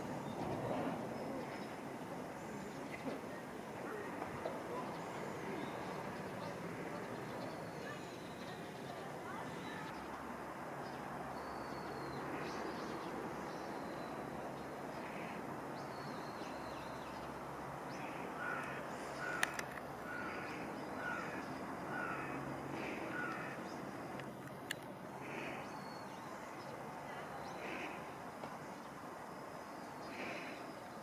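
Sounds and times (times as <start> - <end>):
outdoor background hiss: 0.0 - 31.0
sharp clicks: 18.6 - 19.9.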